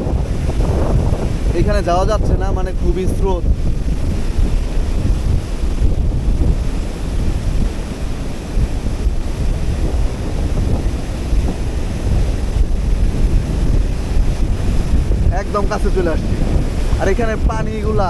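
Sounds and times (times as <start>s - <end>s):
wind buffeting microphone: 0.0s - 18.0s
river water rushing: 3.6s - 18.0s.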